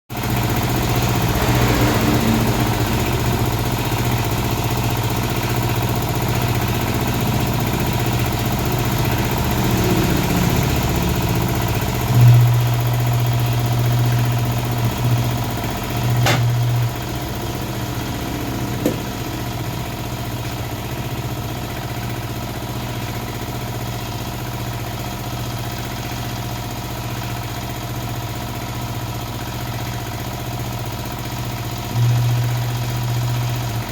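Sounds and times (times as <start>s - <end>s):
motor humming: 0.7s - 22.3s, 31.9s - 33.9s.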